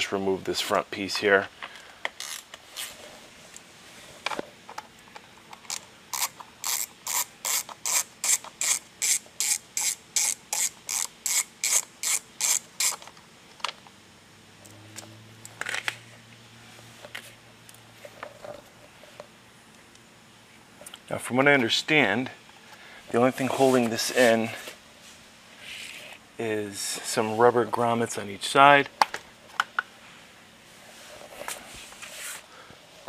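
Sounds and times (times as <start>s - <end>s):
ratchet wrench clicking: 2.2s - 2.5s, 5.7s - 13.1s.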